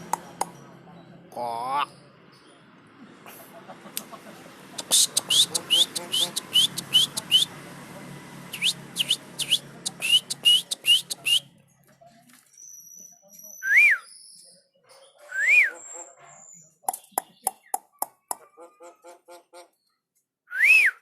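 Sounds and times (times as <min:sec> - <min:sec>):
bird clicking chirps: 0:04.8 - 0:07.4, 0:08.6 - 0:11.4, 0:16.9 - 0:18.4
bird whistles rising and falling: 0:04.9 - 0:07.5, 0:08.6 - 0:11.4, 0:12.6 - 0:14.4, 0:15.3 - 0:15.9, 0:20.5 - 0:21.0.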